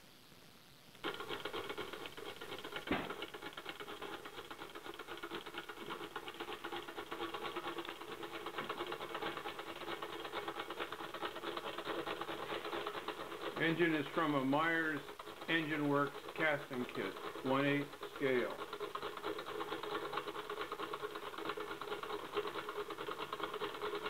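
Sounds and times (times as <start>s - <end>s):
model engine clattering: 1.0s - 24.0s
loud knock: 2.9s - 3.1s.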